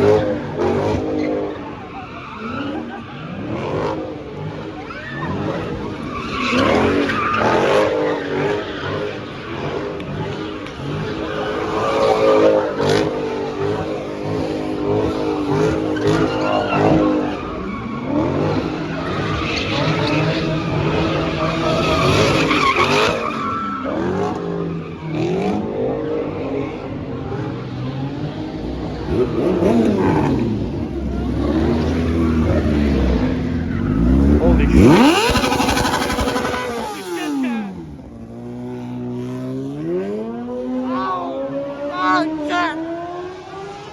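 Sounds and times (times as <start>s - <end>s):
tyres skidding: 0.0s - 40.7s
car engines revving: 0.0s - 43.9s.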